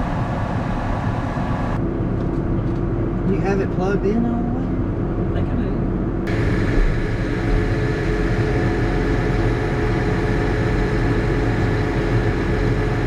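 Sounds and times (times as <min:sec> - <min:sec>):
tractor diesel engine running: 0:00.0 - 0:03.2, 0:06.0 - 0:13.0.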